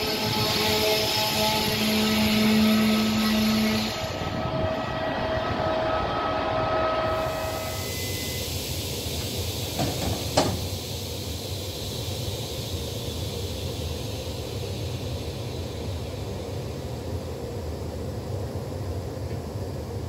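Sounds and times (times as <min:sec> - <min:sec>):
train low hum: 0:00.0 - 0:20.0
high hiss: 0:07.2 - 0:17.0.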